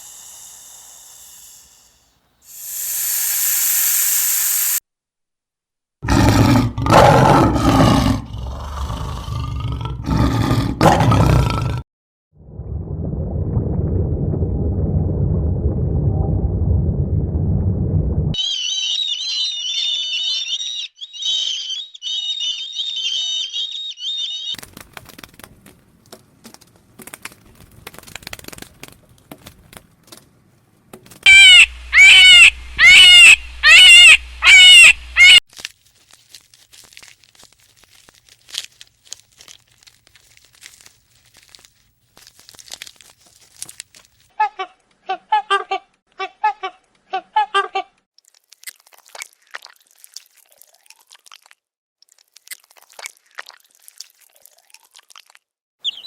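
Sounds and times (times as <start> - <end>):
loud harsh animal calls: 31.3 - 35.4.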